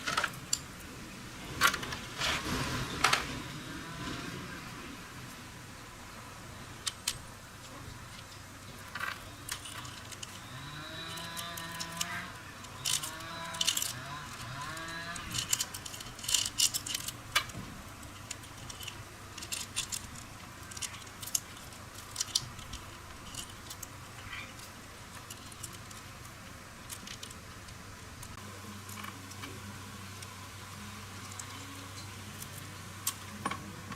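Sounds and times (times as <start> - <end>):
metal tools clinking: 8.2 - 26.0.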